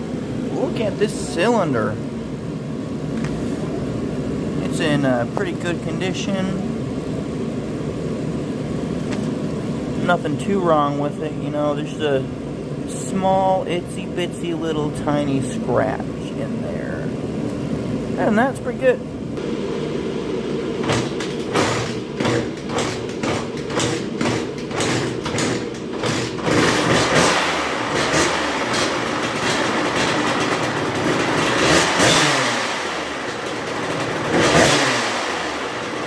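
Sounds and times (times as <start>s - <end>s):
motorcycle engine cracking and revving: 20.7s - 36.0s.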